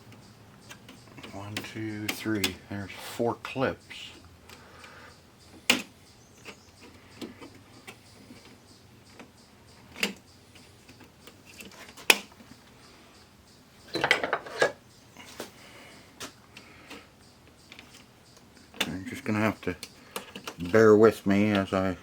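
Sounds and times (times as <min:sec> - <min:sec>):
plastic clattering: 0:13.9 - 0:14.8.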